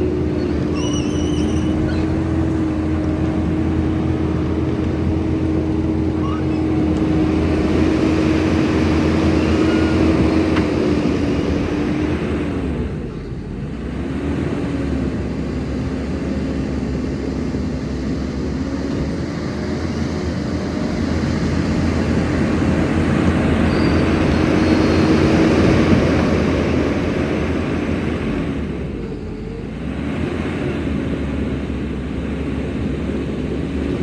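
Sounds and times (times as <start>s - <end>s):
skid steer engine running: 0.0s - 34.0s.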